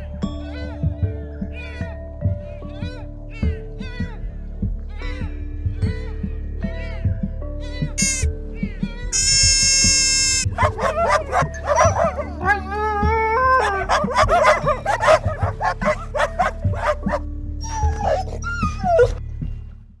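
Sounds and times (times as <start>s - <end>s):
background music: 0.0s - 20.0s
high yipping animal calls: 8.0s - 8.3s, 9.1s - 12.6s, 13.6s - 19.1s.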